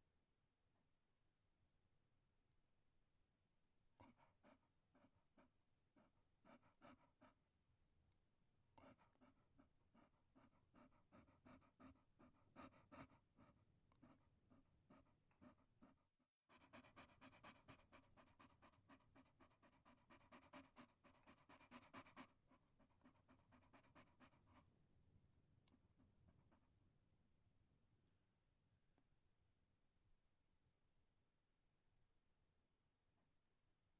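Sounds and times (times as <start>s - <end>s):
dog panting quietly: 4.0s - 27.3s.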